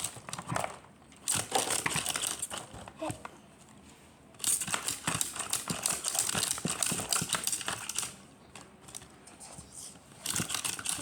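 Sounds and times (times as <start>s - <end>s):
rapid plastic toy clicking: 0.0s - 2.8s, 4.4s - 8.2s, 10.1s - 11.0s.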